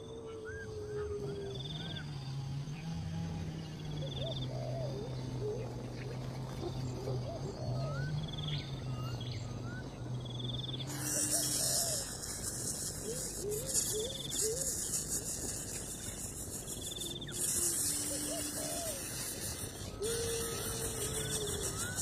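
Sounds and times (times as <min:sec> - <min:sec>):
insects droning: 0:00.0 - 0:22.0
bird chirps: 0:06.6 - 0:22.0.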